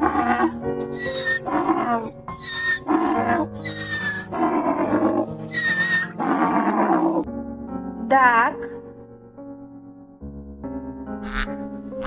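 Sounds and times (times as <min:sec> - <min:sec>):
donkey braying: 0:00.0 - 0:07.3, 0:11.2 - 0:11.5
background music: 0:00.0 - 0:12.0.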